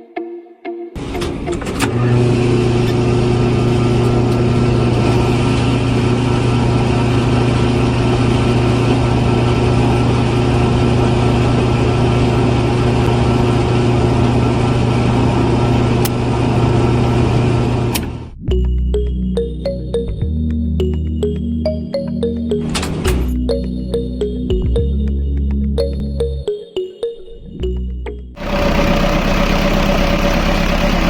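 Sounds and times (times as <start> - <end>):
engine idling: 28.4 - 31.0.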